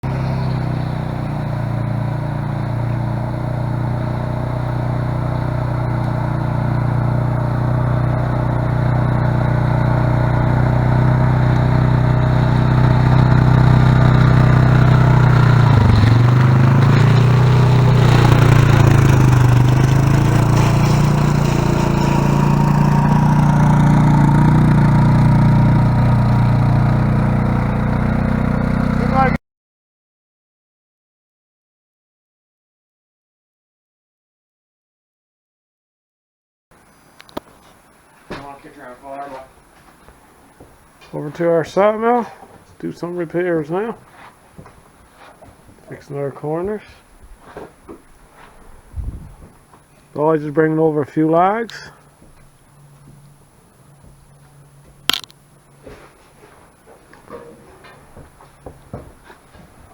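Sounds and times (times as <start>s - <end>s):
engine running: 0.0s - 29.4s, 49.1s - 59.9s.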